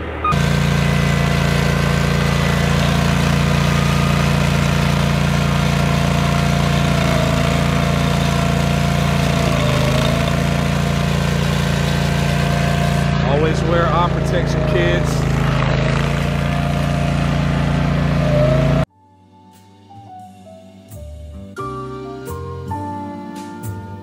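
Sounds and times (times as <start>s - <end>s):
loader engine running: 0.0s - 18.9s.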